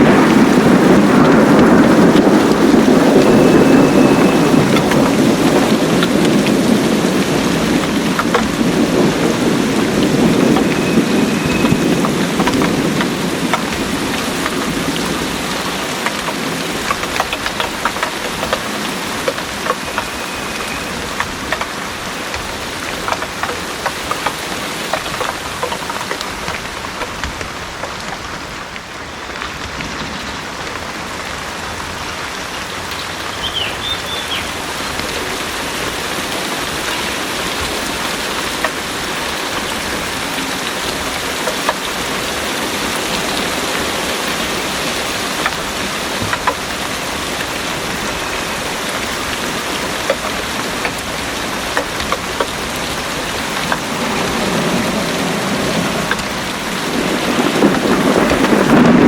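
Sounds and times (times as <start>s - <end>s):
low rumble of thunder: 0.0s - 27.7s, 33.8s - 59.0s
heavy rain pouring: 0.0s - 59.0s
close drip ticks: 15.6s - 27.1s.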